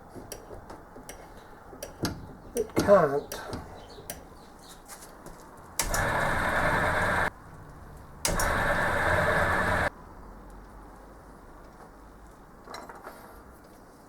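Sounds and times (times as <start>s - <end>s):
electric drill drilling into metal: 5.8s - 7.3s, 8.3s - 9.9s.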